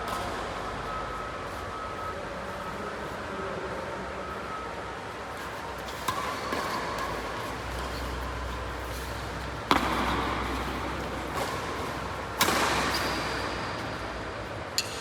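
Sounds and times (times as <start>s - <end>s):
racket hitting shuttlecock: 5.8s - 15.0s.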